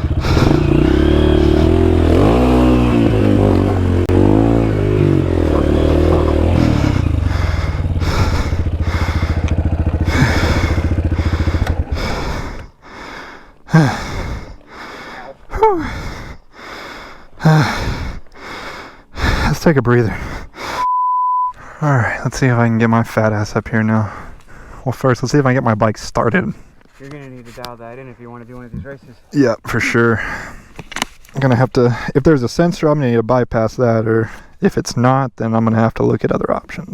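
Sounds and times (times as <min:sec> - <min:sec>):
motorcycle engine revving: 0:00.0 - 0:14.6
heavy gasping breathing: 0:00.0 - 0:20.9, 0:21.5 - 0:22.2, 0:24.0 - 0:24.9, 0:29.1 - 0:30.9.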